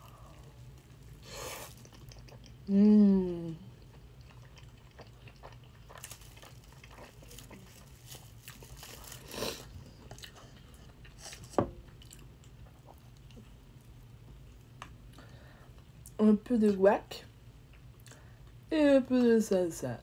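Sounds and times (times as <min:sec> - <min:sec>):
person chewing food: 0:00.0 - 0:02.7, 0:03.5 - 0:16.2.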